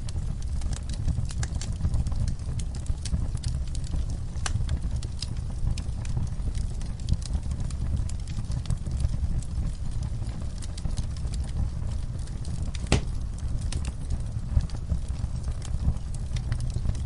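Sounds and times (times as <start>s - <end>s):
wood fire crackling: 0.0s - 17.0s
fire pop: 12.4s - 17.0s.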